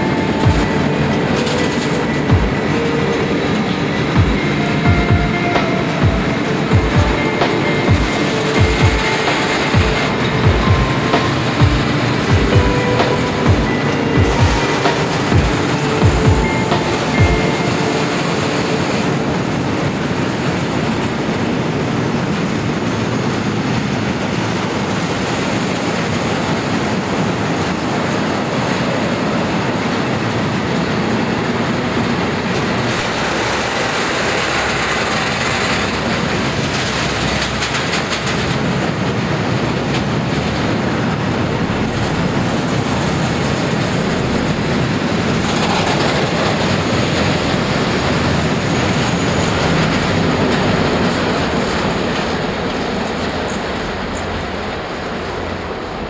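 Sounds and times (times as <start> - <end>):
freight train rumbling past: 0.0 - 56.0
rapid clicking of train wheels: 0.0 - 56.0.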